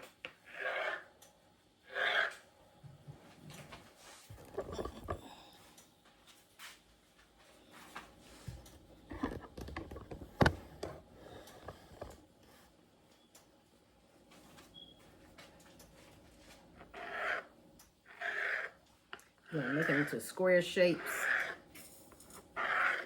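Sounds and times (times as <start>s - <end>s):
blade scraping and tapping: 9.1s - 12.2s, 18.1s - 23.0s.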